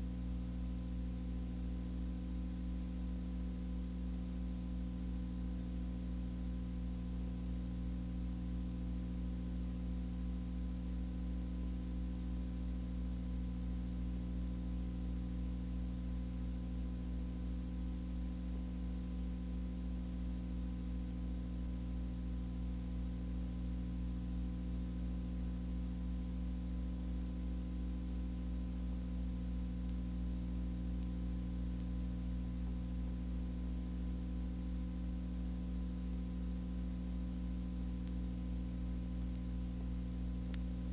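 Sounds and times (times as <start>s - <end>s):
low electrical hum: 0.0s - 40.9s
constant hiss: 9.4s - 40.9s.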